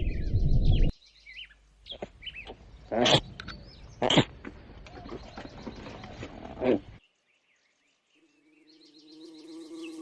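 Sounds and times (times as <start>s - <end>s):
rough outdoor noise: 0.0s - 10.0s
flying insect buzzing: 8.2s - 10.0s.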